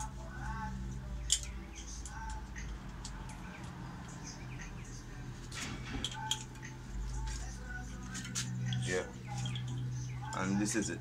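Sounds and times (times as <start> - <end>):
small birds chirping: 1.0 - 2.6, 3.5 - 5.3, 8.5 - 10.9.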